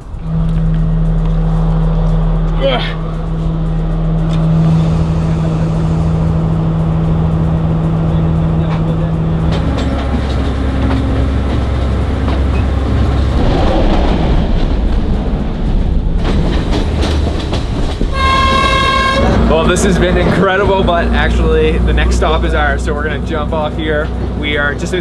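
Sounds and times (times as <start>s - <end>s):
diesel train engine hum: 0.0s - 25.0s
wheels clattering on rails: 0.0s - 25.0s
train horn: 0.1s - 5.8s, 18.1s - 19.7s.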